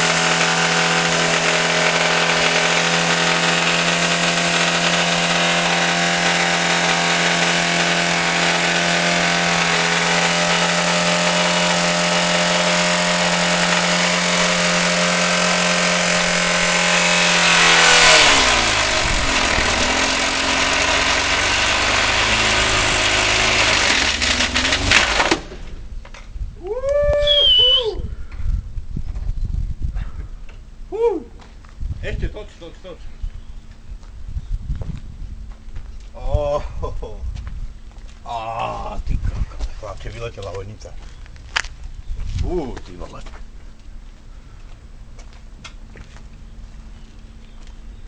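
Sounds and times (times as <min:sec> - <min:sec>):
engine at high revs: 0:00.0 - 0:25.7.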